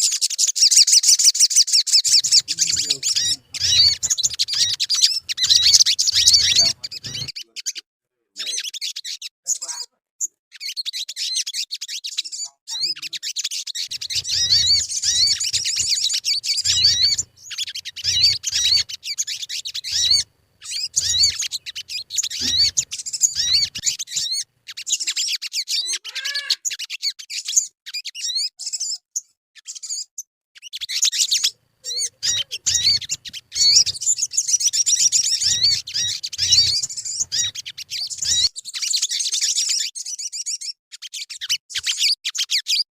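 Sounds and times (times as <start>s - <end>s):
bird twittering chirps and trills: 0.0s - 7.8s, 8.4s - 42.9s
faint low hum: 2.2s - 7.3s.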